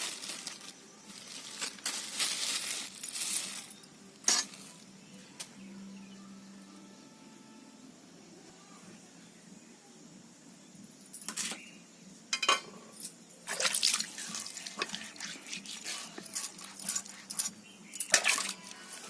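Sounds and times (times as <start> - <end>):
water splashing and dripping: 13.4 - 17.4.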